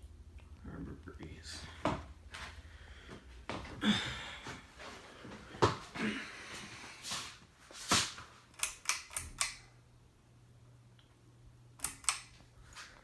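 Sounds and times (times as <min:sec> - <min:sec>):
ceiling fan motor humming: 0:00.0 - 0:13.0
sharp clicks: 0:08.6 - 0:09.7, 0:11.8 - 0:12.4.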